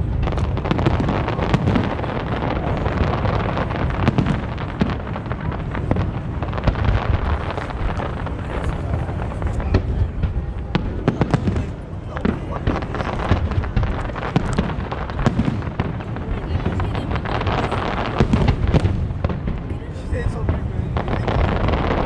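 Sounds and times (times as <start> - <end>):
fireworks booms and crackles: 0.0 - 22.0
heavy low rumble: 5.3 - 21.9.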